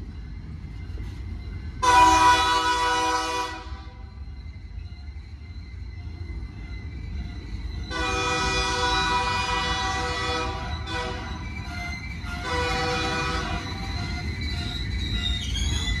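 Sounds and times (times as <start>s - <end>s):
train wheels rumbling on rails: 0.0s - 16.0s
locomotive horn blasts: 1.8s - 4.0s, 7.9s - 11.4s, 12.4s - 13.7s.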